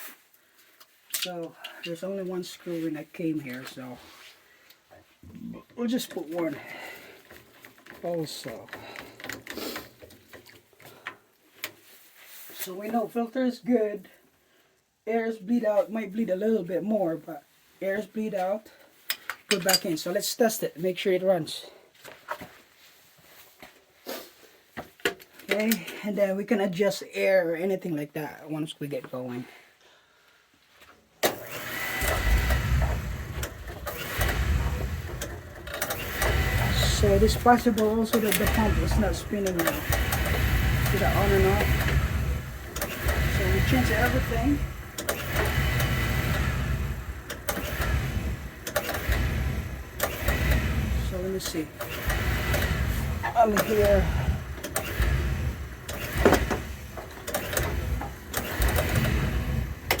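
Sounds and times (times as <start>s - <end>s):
burner motor and fan whining: 31.4s - 60.0s.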